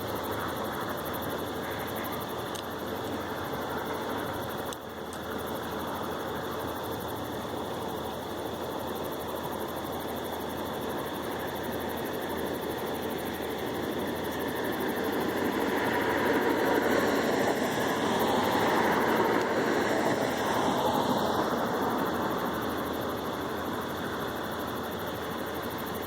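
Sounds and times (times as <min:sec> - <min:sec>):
aircraft engine roar: 0:11.4 - 0:26.0.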